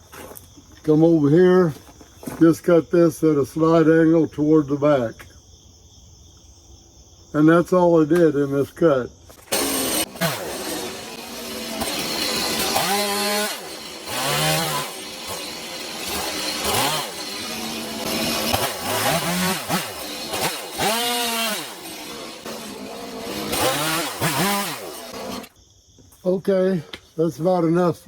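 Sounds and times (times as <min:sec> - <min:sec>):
chainsaw cutting wood: 0:09.5 - 0:25.5.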